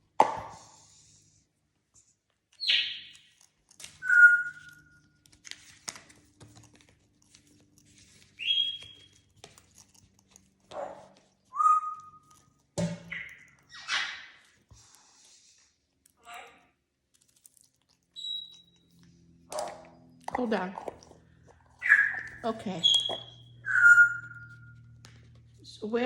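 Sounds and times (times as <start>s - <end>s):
parrot whistling: 4.0s - 5.0s, 8.4s - 9.1s, 11.5s - 12.3s, 18.2s - 18.8s, 21.8s - 24.8s.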